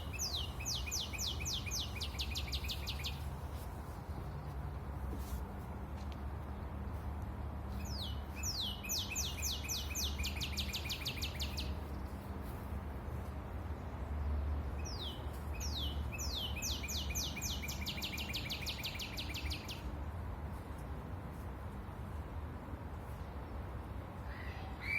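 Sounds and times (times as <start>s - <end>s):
songbird singing: 0.0s - 4.6s, 7.7s - 12.6s, 13.8s - 20.0s.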